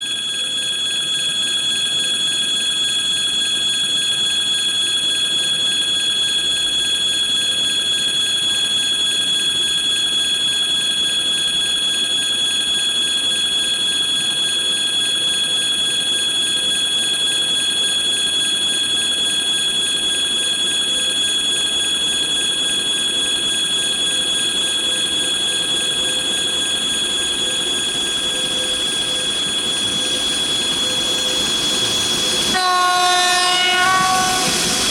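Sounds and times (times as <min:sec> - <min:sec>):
train high-pitched ringing whine: 0:00.0 - 0:34.9
train rushing noise: 0:24.1 - 0:34.9.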